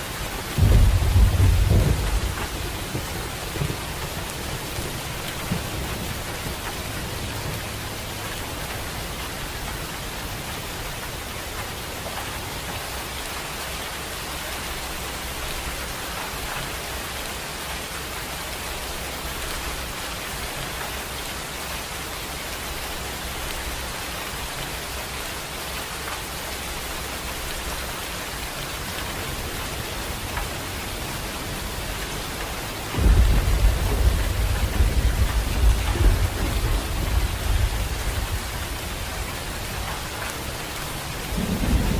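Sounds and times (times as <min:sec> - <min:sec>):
heavy rain hissing: 0:00.0 - 0:41.9
thunder rumbling: 0:00.3 - 0:10.1, 0:28.6 - 0:41.9.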